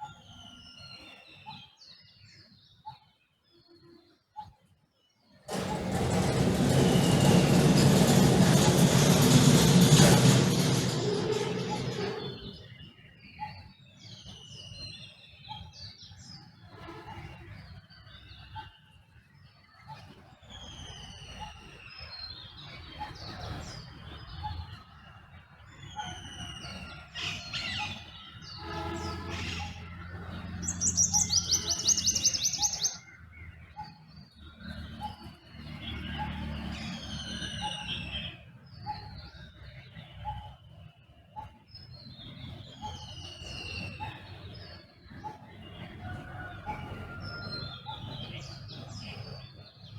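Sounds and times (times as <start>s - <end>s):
songbirds whistling: 25.7s - 29.8s, 30.6s - 40.7s, 41.4s - 49.9s
bird trilling chatter: 30.6s - 33.0s.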